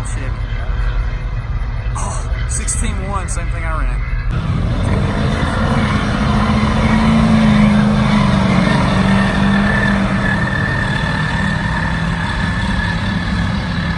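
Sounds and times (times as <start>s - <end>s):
truck engine running: 4.2s - 13.9s.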